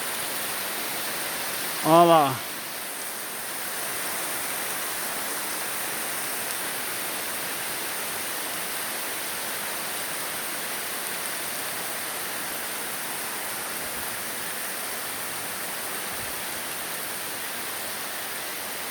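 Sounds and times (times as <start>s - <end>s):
torrential rain hissing: 0.0s - 18.9s.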